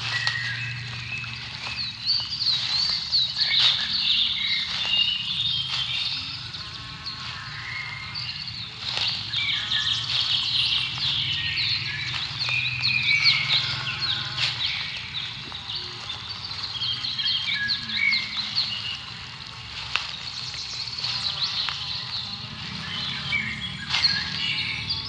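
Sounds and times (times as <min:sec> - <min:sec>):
birds chirping and trilling: 0:00.0 - 0:25.0.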